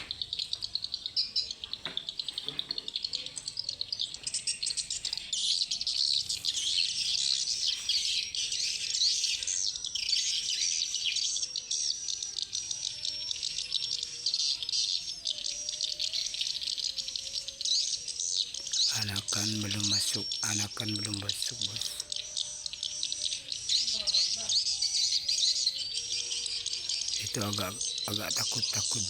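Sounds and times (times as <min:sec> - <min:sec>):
swiftlets twittering: 0:18.1 - 0:29.0.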